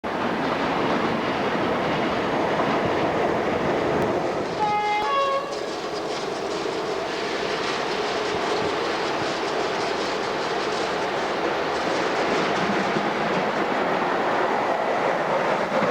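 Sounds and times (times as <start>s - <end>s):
train rumble and wheel clatter: 0.0s - 15.9s
two-tone train horn blast: 4.6s - 5.7s.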